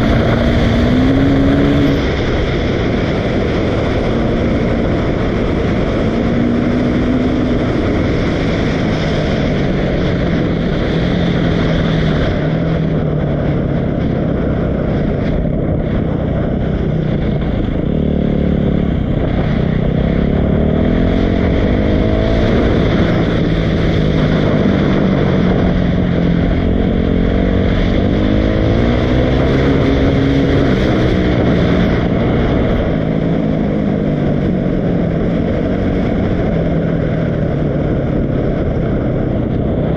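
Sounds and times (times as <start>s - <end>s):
dirt bike engine revving: 0.0s - 13.6s, 16.7s - 33.2s.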